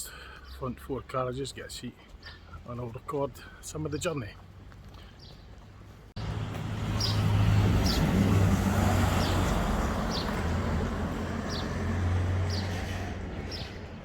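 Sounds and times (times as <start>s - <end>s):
vehicle engine humming: 5.8s - 14.0s.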